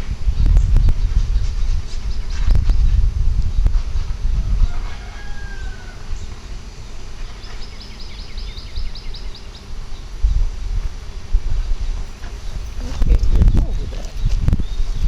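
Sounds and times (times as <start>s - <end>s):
birds calling: 3.6s - 15.0s.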